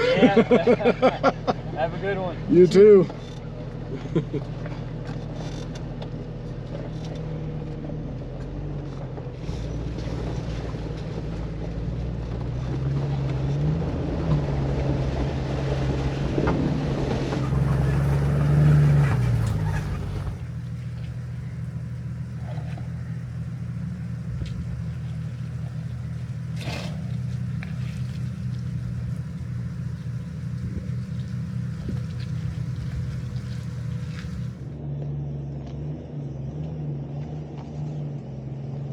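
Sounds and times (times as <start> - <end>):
car engine pulling at low speed: 17.2 - 34.8
rough noisy rumble: 17.3 - 34.8.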